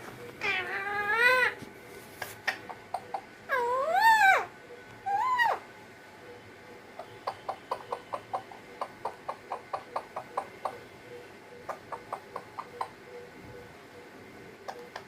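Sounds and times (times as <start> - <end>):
parrot clicking: 11.7 - 13.0, 14.7 - 15.0.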